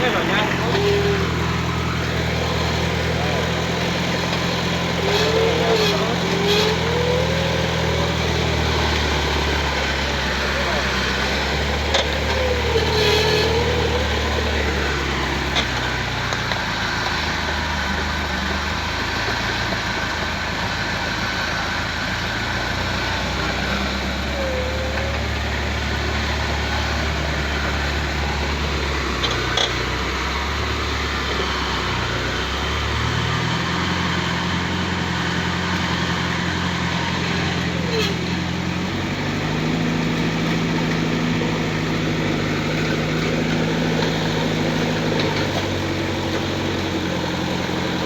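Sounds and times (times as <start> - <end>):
truck engine running: 0.0 - 48.0.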